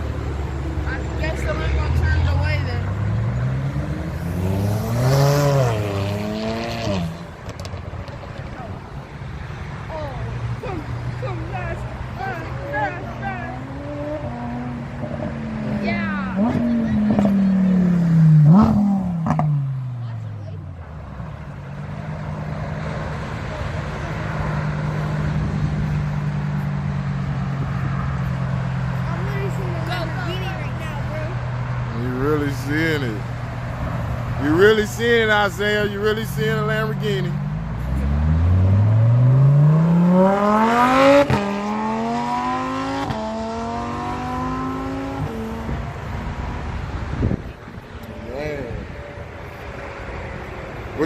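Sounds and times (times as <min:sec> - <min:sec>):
car engine droning: 0:00.0 - 0:51.0.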